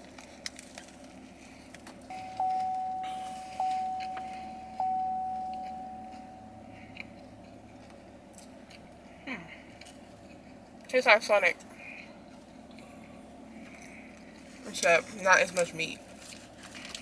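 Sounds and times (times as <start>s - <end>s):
electronic chime dings: 2.1s - 6.8s.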